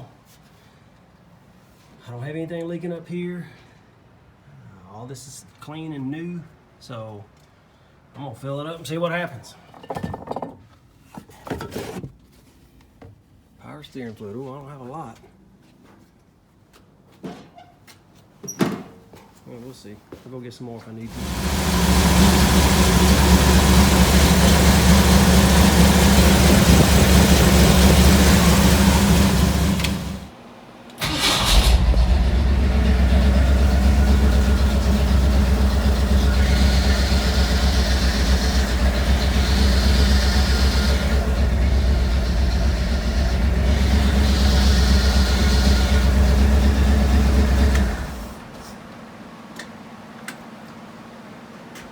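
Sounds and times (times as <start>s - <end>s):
pickup engine idling: 21.1s - 30.3s, 31.0s - 48.5s.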